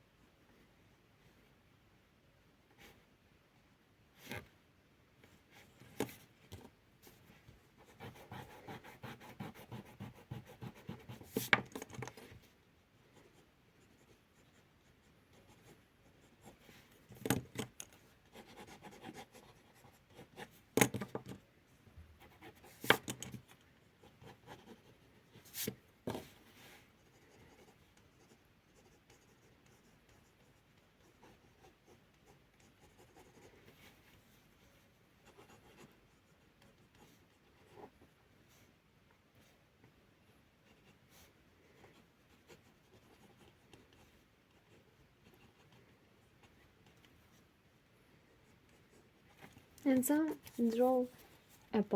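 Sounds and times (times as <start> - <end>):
pencil scratching on paper: 7.8 - 12.4, 13.1 - 21.4, 22.2 - 34.1, 35.2 - 38.0, 40.6 - 47.4.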